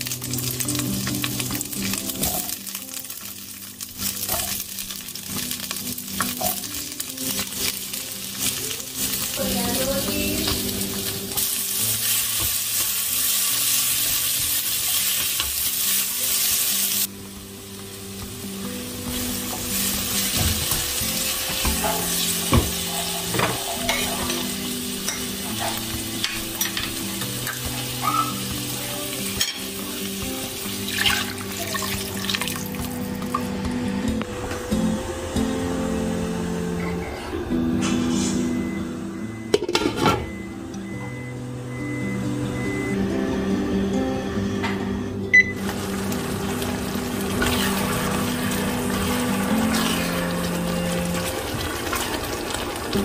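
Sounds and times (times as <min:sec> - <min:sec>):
peppers sizzling in hot oil: 0:00.0 - 0:33.7, 0:45.3 - 0:53.0.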